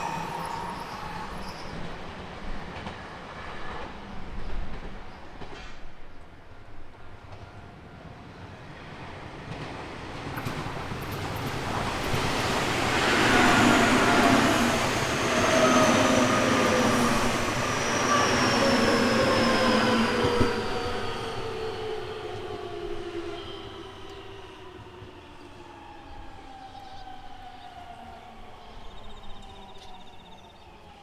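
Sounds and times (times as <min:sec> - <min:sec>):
electric train passing: 0:00.0 - 0:05.6, 0:07.9 - 0:31.0
whining tones sliding down: 0:12.2 - 0:24.5.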